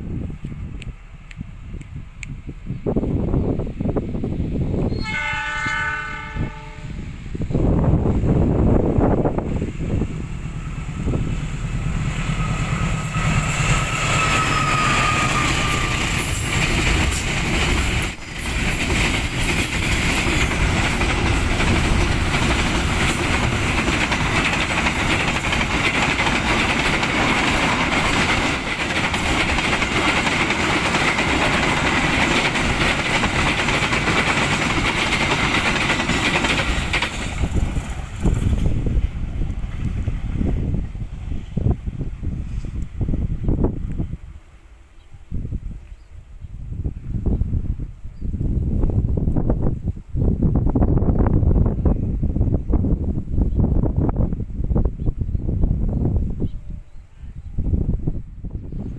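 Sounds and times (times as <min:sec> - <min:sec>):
train wheels on rails: 0:06.2 - 0:44.8.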